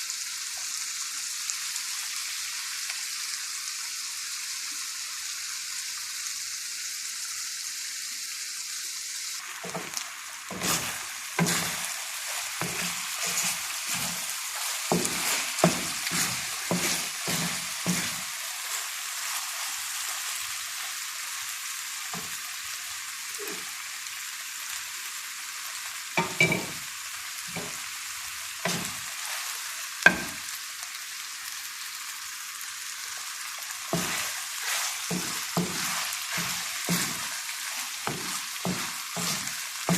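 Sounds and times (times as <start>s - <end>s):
chicken sizzling in a pan: 0.0s - 39.9s
utensil scraping and knocking pan: 9.6s - 18.3s, 28.7s - 29.5s, 30.1s - 30.4s, 33.9s - 39.9s.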